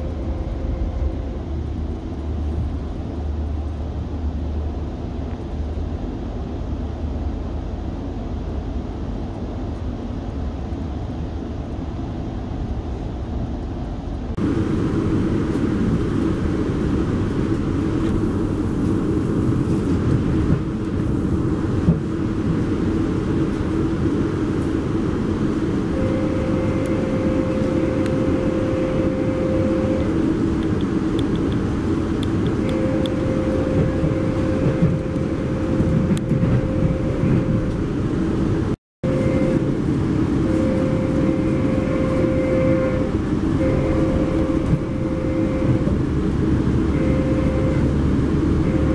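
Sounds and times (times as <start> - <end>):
steady tone: 0.0 - 3.4, 25.7 - 48.9
train rolling noise: 0.0 - 48.9.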